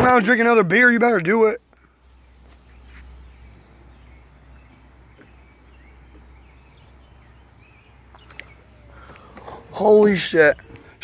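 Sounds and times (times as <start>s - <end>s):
faint bird chirps: 1.8s - 9.7s.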